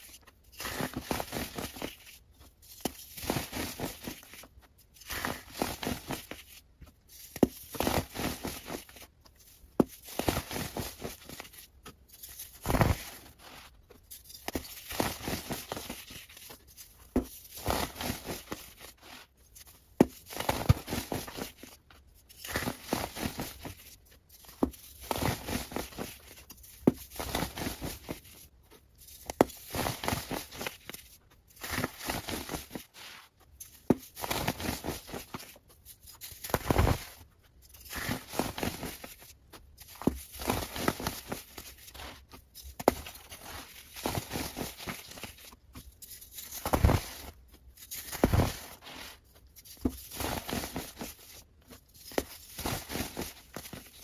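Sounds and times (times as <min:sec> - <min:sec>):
material tearing and crunching: 0:33.8 - 0:37.2, 0:39.9 - 0:54.0.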